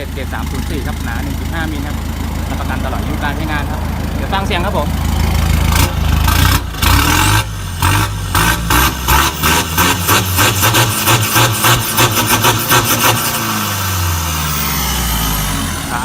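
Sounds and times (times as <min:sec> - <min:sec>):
diesel engine idling and revving: 0:00.0 - 0:16.0.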